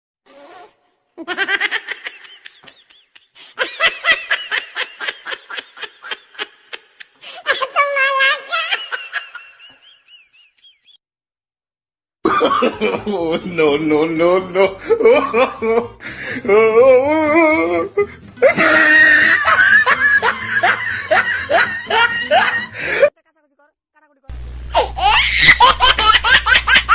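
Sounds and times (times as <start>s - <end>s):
high-pitched laughter: 1.2s - 11.0s, 17.1s - 23.6s, 24.7s - 26.9s.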